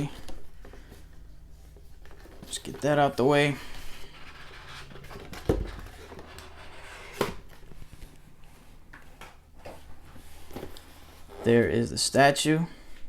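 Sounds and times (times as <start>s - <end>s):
box and packaging handled: 0.1s - 3.2s, 3.8s - 8.1s.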